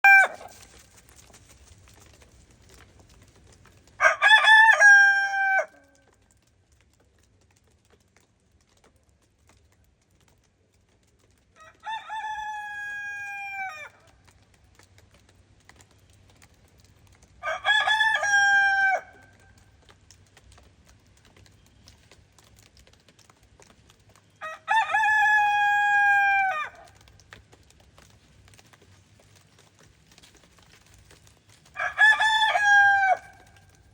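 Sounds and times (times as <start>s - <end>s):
rooster crowing: 0.0s - 0.6s, 4.0s - 5.9s, 11.6s - 14.0s, 17.4s - 19.2s, 24.4s - 26.9s, 31.8s - 33.5s.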